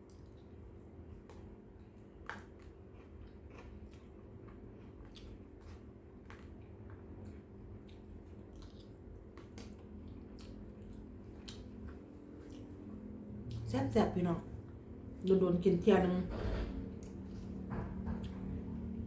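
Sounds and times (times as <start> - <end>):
chewing with clicks and smacks: 0.0 - 13.7, 17.0 - 19.0.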